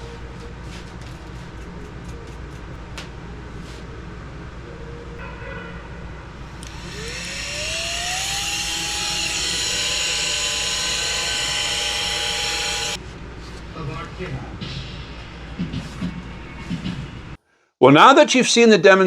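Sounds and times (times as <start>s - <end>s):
vacuum cleaner motor whine: 6.4s - 13.0s.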